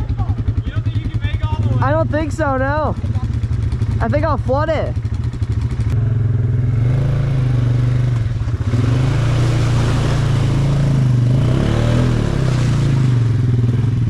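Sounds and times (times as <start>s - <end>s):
four-wheeler engine under throttle: 0.0s - 14.0s
water rushing: 7.8s - 13.6s.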